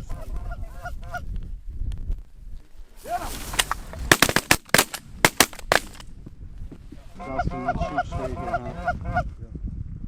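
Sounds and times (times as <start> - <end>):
wind rumble on microphone: 0.0 - 4.1, 5.9 - 10.0
shotgun shots: 4.0 - 6.0
geese honking: 7.2 - 9.2.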